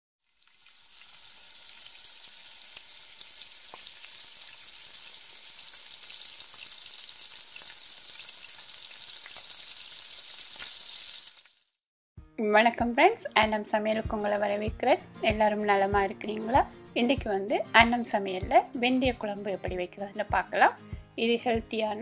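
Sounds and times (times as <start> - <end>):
vegetables sizzling in hot oil: 0.2 - 11.8.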